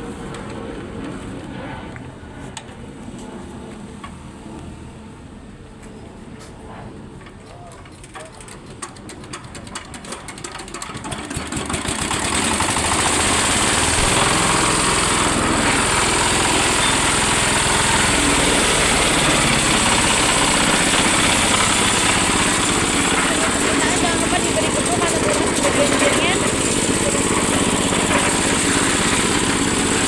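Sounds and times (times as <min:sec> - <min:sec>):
diesel engine running: 0:08.1 - 0:30.0.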